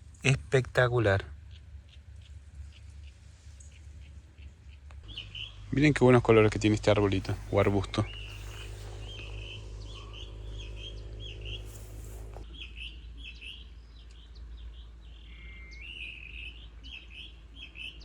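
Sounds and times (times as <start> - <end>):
cicada chirping calls: 5.1 - 12.4.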